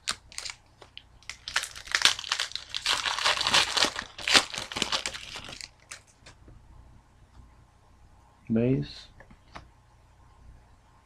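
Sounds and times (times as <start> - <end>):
plastic wrapper crinkling: 0.0 - 6.4.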